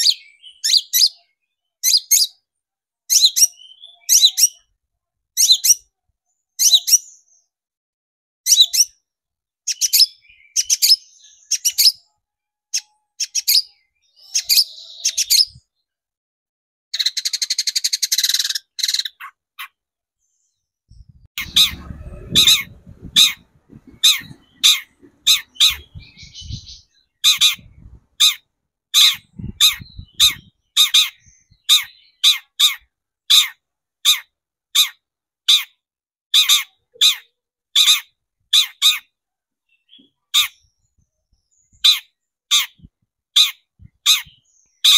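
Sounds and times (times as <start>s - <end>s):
shrike calling harsh notes: 21.4s - 26.6s.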